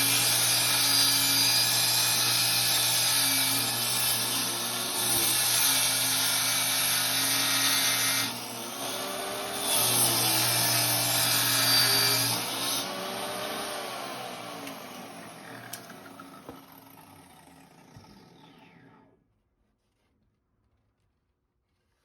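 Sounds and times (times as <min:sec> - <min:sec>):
electric power tool running: 0:00.0 - 0:19.0
motor winding down: 0:08.9 - 0:19.2.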